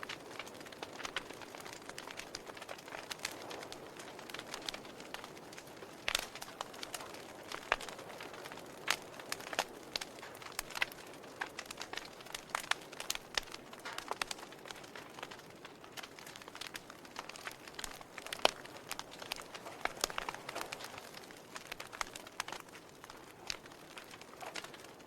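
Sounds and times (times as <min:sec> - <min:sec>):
wood fire crackling: 0:00.0 - 0:25.0.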